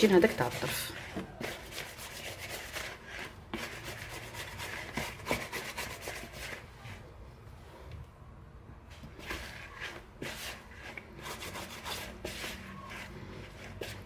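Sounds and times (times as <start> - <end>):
hands kneading dough: 0.0 - 14.0.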